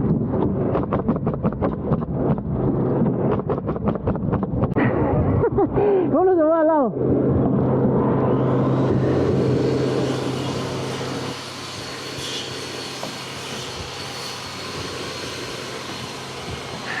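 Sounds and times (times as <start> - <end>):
motor hum: 7.0 - 17.0.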